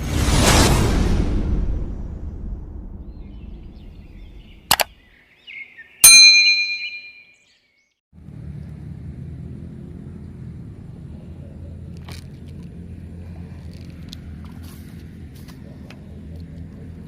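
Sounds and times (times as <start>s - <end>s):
metallic clang ringing: 6.0s - 7.3s.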